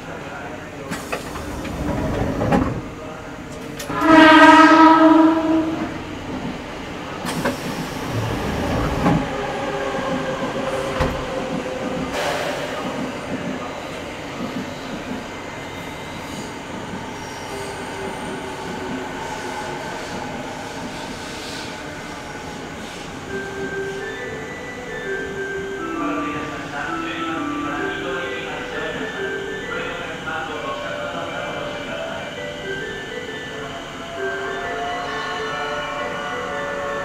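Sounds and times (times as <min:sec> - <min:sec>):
train horn tone: 0:03.8 - 0:06.2.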